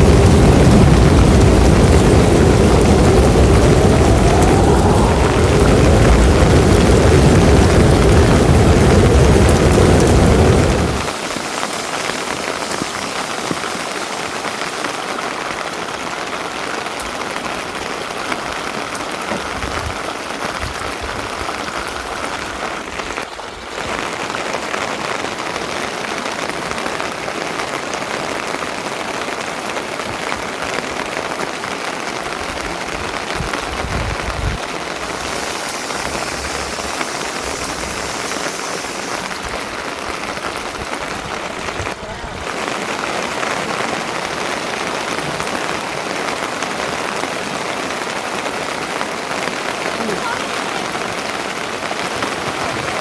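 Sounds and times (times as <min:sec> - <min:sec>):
loud low rumble: 0:00.0 - 0:11.1
steady rain falling: 0:00.0 - 0:53.0.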